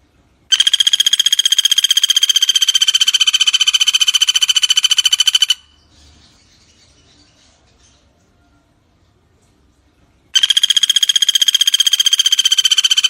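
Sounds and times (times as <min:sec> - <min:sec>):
woodpecker rattling trill: 0:00.5 - 0:05.8, 0:10.4 - 0:13.0.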